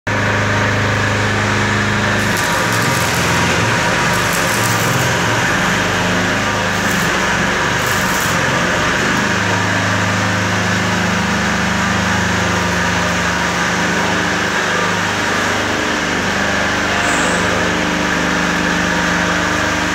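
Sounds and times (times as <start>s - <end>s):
machine humming with whine: 0.1s - 13.3s
short hissing bursts: 2.2s - 5.9s.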